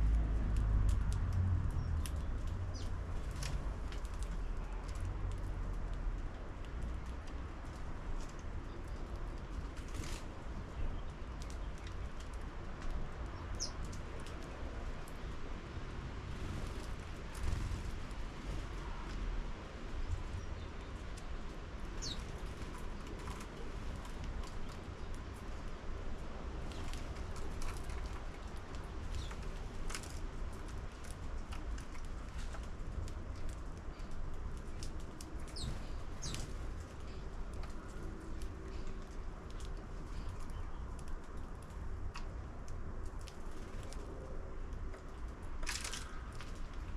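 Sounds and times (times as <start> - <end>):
steady low rumble: 0.0 - 6.8
sparrows chirping: 1.8 - 3.5, 13.3 - 14.0, 21.8 - 23.7, 26.7 - 29.4, 35.4 - 39.0
bird chirp: 22.0 - 22.4, 35.5 - 36.5.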